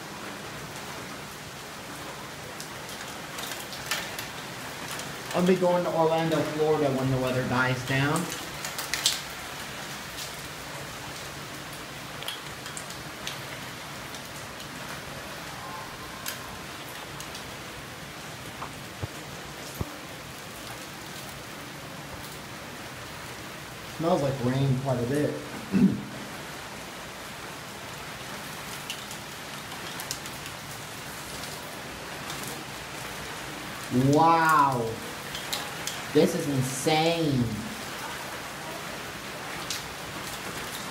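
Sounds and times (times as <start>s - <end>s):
heavy rain: 0.0s - 40.9s
drips and splashes: 2.6s - 5.5s, 6.1s - 21.4s, 28.1s - 33.3s, 33.9s - 38.6s, 39.2s - 40.9s.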